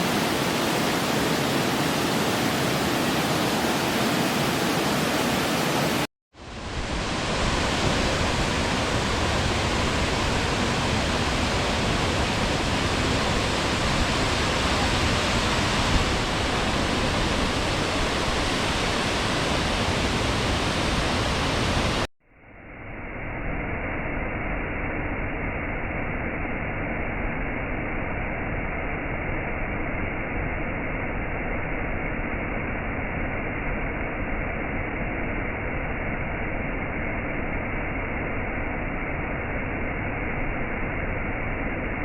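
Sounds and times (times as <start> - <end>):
waterfall rushing: 0.0 - 22.1.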